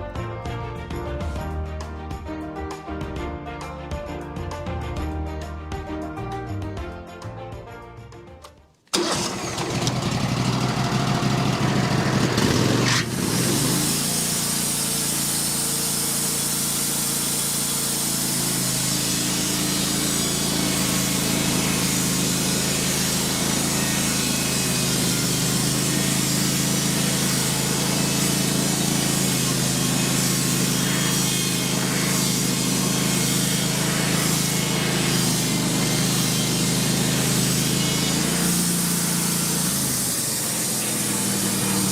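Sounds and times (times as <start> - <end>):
sawmill engine running: 8.9 - 41.9.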